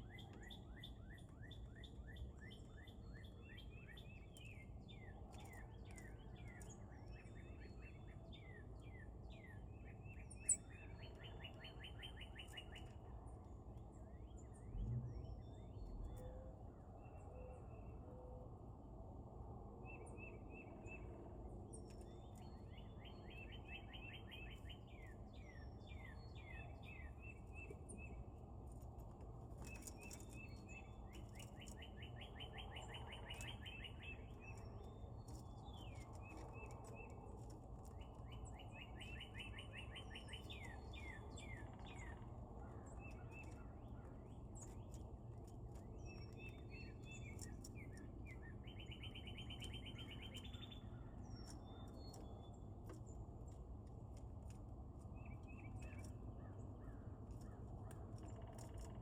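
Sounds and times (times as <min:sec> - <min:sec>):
songbird singing: 0:00.0 - 0:18.4, 0:19.8 - 0:59.0
low outdoor rumble: 0:12.8 - 0:20.2.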